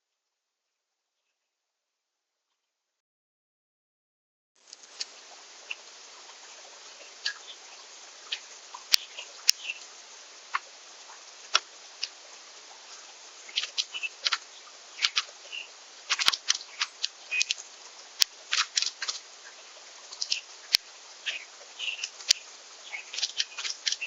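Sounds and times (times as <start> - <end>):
seeds being pecked and cracked: 13.6 - 15.4, 16.1 - 17.6, 18.2 - 19.2, 23.0 - 24.0
short high bird chirps: 13.8 - 14.3, 16.6 - 17.6, 21.2 - 24.0.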